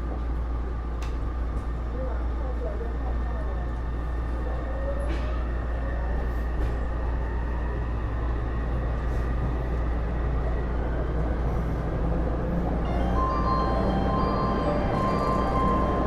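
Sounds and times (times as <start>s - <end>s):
rumble of train wheels: 0.0s - 16.0s
faint high traction tone: 12.8s - 16.0s.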